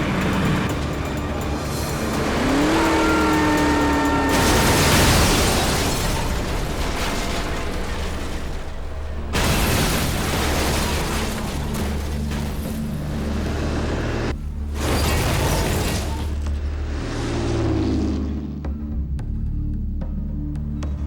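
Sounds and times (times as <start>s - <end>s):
film score music: 0.0s - 4.4s, 16.1s - 21.0s
van crashing and rolling: 0.0s - 16.7s
sudden crash: 2.7s - 13.4s.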